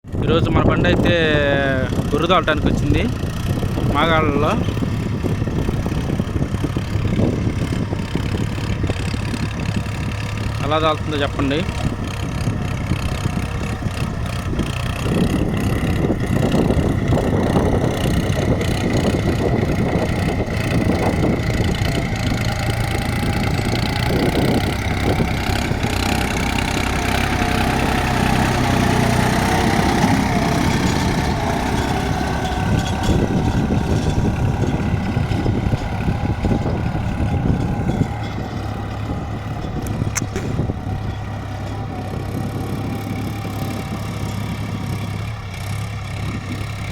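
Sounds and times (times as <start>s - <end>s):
tractor diesel engine under load: 0.0s - 46.9s.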